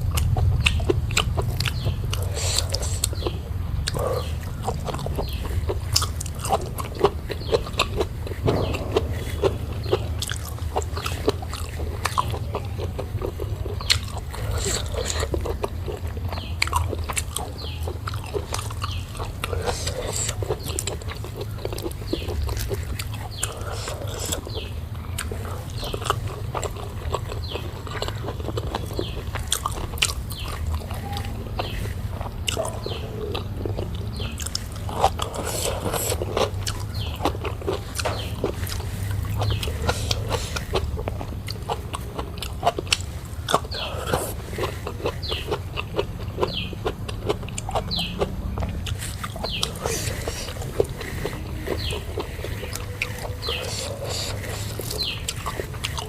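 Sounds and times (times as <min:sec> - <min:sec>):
low hum: 0:00.0 - 0:28.0
person chewing food: 0:00.0 - 0:56.0
wet mouth clicks and smacks: 0:00.0 - 0:56.0.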